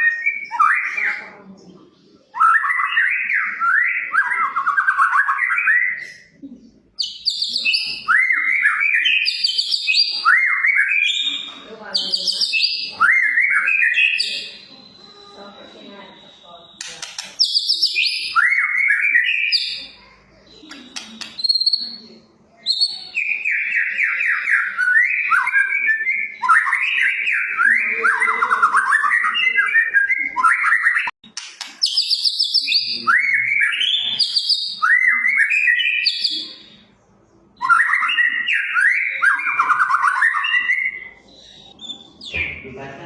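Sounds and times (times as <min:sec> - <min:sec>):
bird singing rapid notes: 0:16.2 - 0:36.8.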